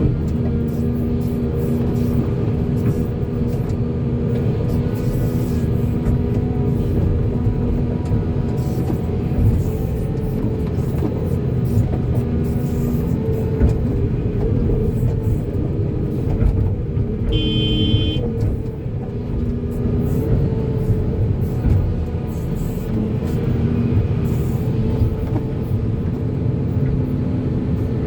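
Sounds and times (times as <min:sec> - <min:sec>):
excavator diesel engine running: 0:00.0 - 0:28.0
high-pitched tone: 0:17.3 - 0:18.2.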